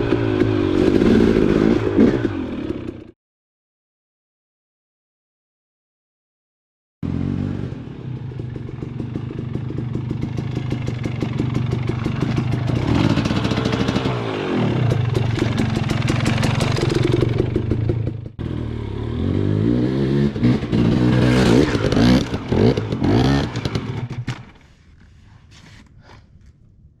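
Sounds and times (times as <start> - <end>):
dirt bike engine revving: 0.0 - 3.1, 7.0 - 24.6.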